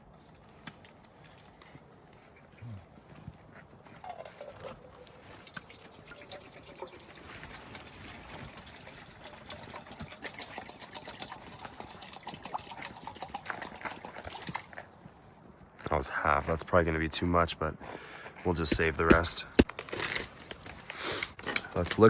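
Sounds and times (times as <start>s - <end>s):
food bubbling and sizzling: 4.0s - 15.0s.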